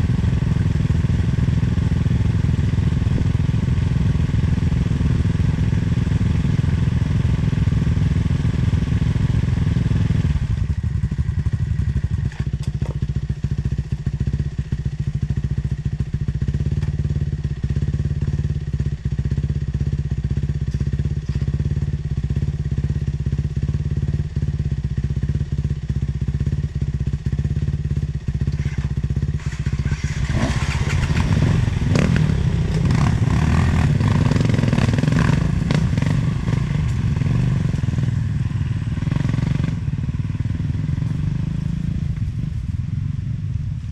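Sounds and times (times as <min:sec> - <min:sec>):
motorcycle engine running: 0:00.0 - 0:43.9
bike knocking over rough ground: 0:12.2 - 0:13.2.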